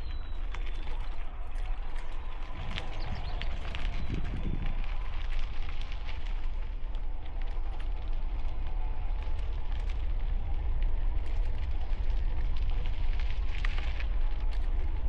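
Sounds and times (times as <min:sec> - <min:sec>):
bicycle tyres crunching gravel: 0:00.0 - 0:15.0
wind rumble on microphone: 0:00.0 - 0:15.0.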